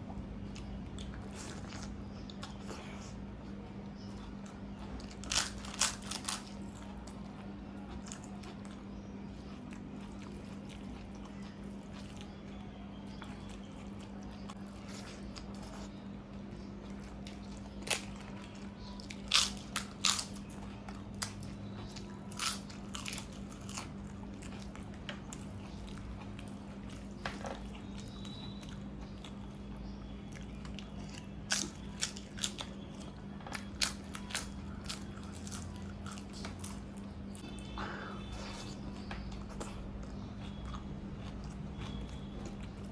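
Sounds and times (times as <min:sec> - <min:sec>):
steady low hum: 0:00.0 - 0:42.9
crunchy bites of fried food: 0:04.2 - 0:07.2, 0:17.0 - 0:29.6, 0:30.3 - 0:37.4.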